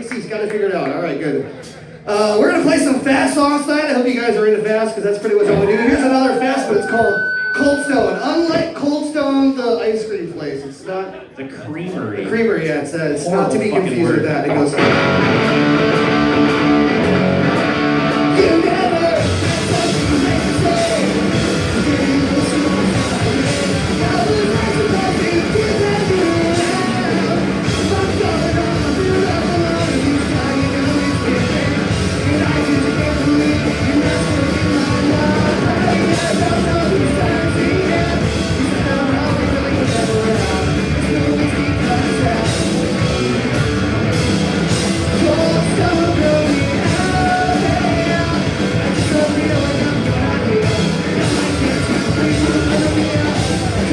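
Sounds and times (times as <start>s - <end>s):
drums: 0.0s - 10.8s, 11.8s - 53.9s
distorted electric guitars: 1.4s - 9.8s, 12.6s - 53.9s
bass guitar: 4.7s - 8.9s, 13.4s - 53.9s
person shouting vocals: 5.4s - 7.2s.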